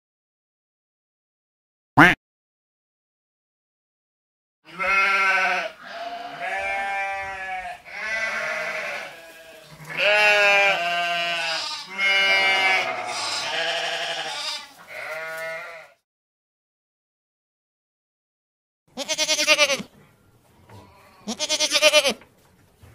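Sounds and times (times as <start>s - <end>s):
sheep bleating: 4.7s - 16.0s, 18.9s - 19.9s, 20.8s - 22.2s.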